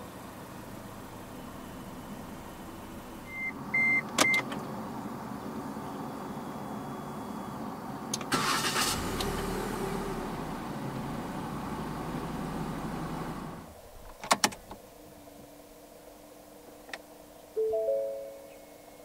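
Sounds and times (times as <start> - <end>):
car engine idling: 0.0 - 3.8, 4.6 - 14.2
faint steady tone: 5.0 - 8.1, 15.0 - 19.0
starter cranking engine: 8.3 - 9.4.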